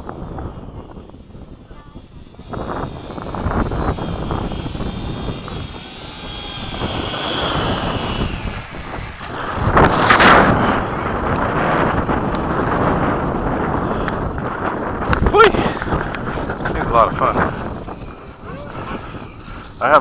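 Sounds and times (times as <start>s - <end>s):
model aircraft motor whine: 0.0s - 20.0s
wind noise on microphone: 0.0s - 20.0s.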